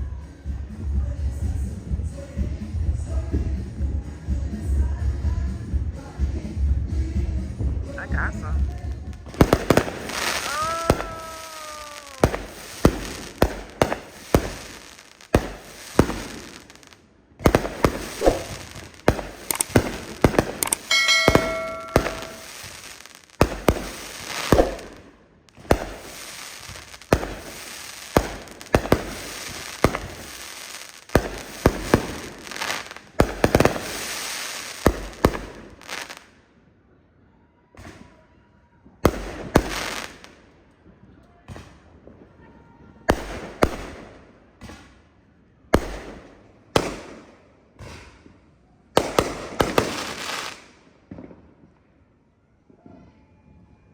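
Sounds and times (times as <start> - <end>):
fireworks bangs and crackles: 0.0 - 36.6, 37.7 - 53.6
brief ringing tone: 20.9 - 22.5.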